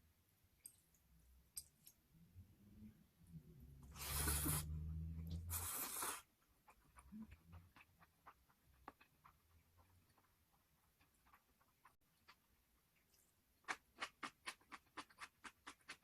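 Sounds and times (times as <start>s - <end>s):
slurping noodles: 3.8s - 7.8s
soft chewing clicks: 6.6s - 16.0s.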